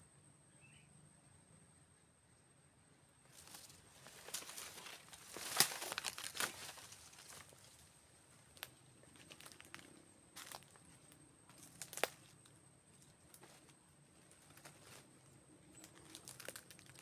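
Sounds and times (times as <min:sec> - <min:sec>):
rustling and crackling brush: 0:03.3 - 0:12.3.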